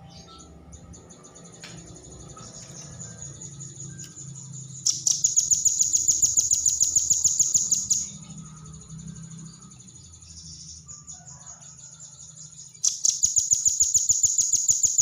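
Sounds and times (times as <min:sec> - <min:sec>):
nuthatch trilling: 0:00.1 - 0:08.4, 0:12.8 - 0:15.0.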